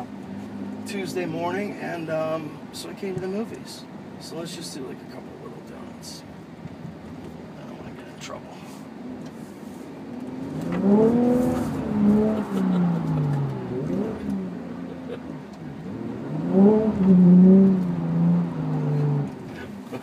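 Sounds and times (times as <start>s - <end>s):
car engine revving hard: 10.2s - 20.0s.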